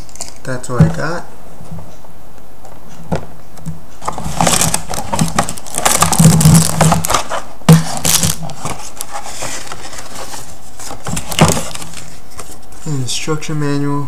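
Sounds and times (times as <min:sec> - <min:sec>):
cardboard packaging rustling: 0:04.0 - 0:12.8.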